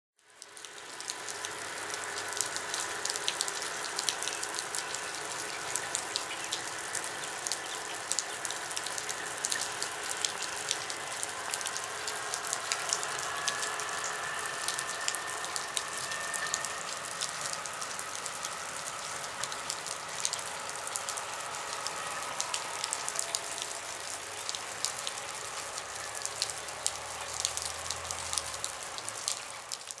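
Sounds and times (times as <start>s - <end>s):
steady rain pattering: 0.2s - 30.0s
faint diesel trains running: 0.8s - 29.8s
faint high drawn-out tone: 11.1s - 24.2s.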